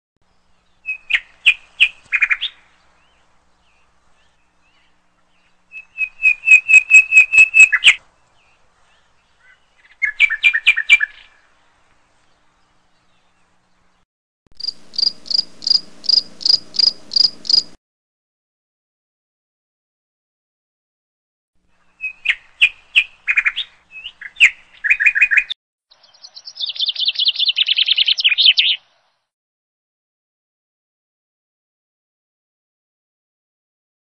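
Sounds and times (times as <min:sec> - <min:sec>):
bird calls rapid repeated notes: 0:05.8 - 0:08.0, 0:14.6 - 0:17.8, 0:26.3 - 0:28.8.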